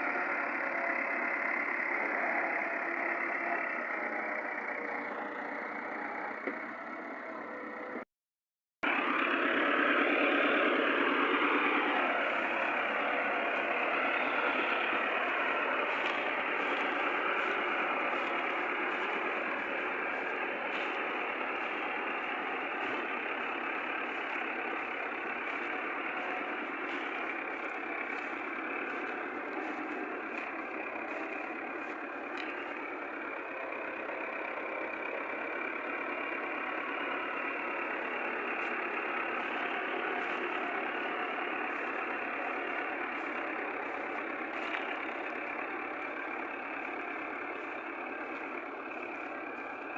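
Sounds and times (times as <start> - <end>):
tractor diesel engine running: 0.0 - 8.1, 8.8 - 49.9.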